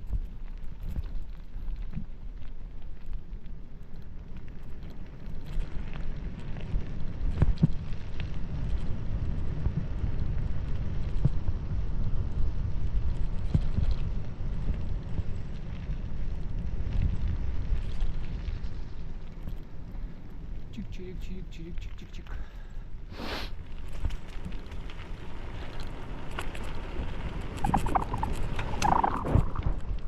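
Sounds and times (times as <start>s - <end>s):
wind buffeting microphone: 23.9s - 30.0s.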